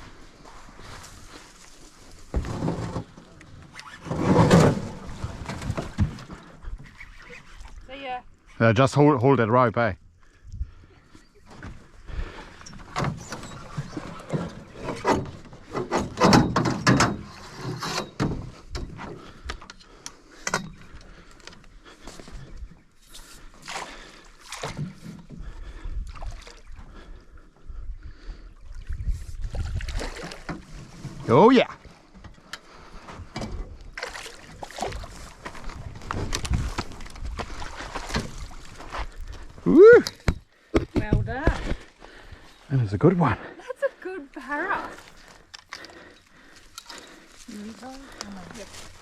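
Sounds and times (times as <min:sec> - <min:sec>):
knocks and rustles on a boat: 0:00.4 - 0:07.6, 0:12.6 - 0:19.8, 0:24.4 - 0:26.0, 0:29.6 - 0:31.3, 0:31.9 - 0:39.6, 0:40.2 - 0:41.8
irregular knocks and clunks: 0:12.6 - 0:21.6, 0:32.1 - 0:33.8, 0:40.1 - 0:41.8
water sloshing: 0:20.8 - 0:27.2, 0:28.7 - 0:32.0, 0:32.7 - 0:39.6, 0:43.3 - 0:49.0.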